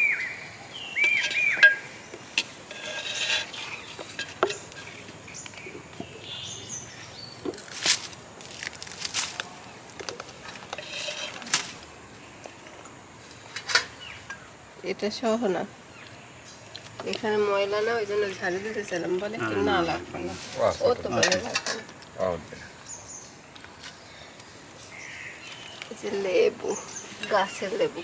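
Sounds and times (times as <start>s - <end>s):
bird whistling calls: 0.0s - 1.9s
clicks and rustles of handling: 7.4s - 14.4s.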